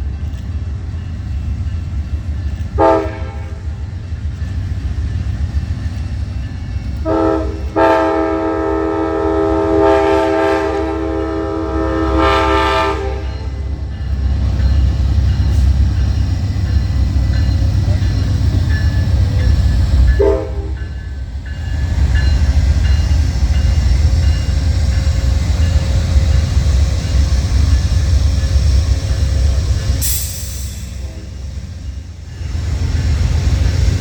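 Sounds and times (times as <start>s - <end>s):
train passing rumble: 0.0s - 34.0s
locomotive air horn blasts: 2.8s - 3.6s, 7.0s - 13.6s, 20.2s - 20.8s.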